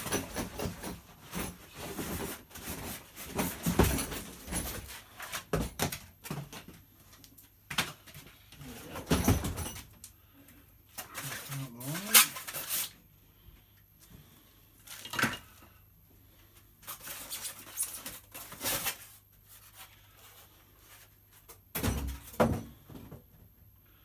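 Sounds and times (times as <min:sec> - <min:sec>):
cardboard packaging scraping and rustling: 0:00.0 - 0:05.6, 0:11.0 - 0:13.0, 0:16.8 - 0:21.5.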